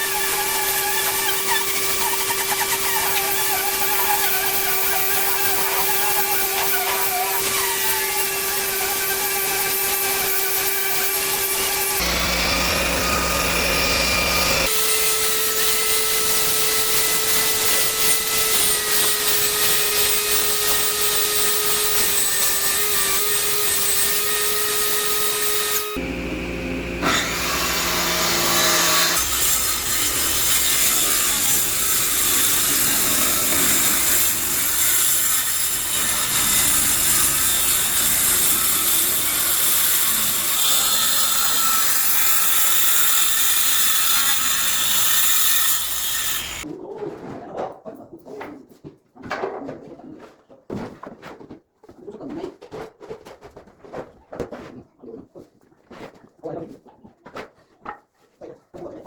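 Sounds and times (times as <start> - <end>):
power tool cutting wood: 0.0 - 46.7.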